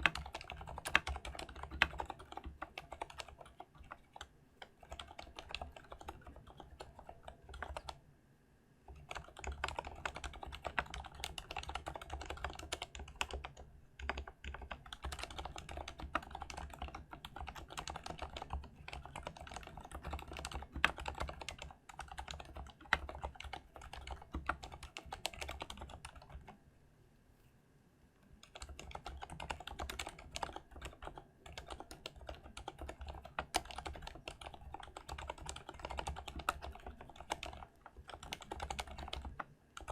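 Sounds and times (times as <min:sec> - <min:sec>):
typing on mechanical keyboard: 0:00.0 - 0:08.0, 0:08.9 - 0:26.6, 0:28.4 - 0:39.9.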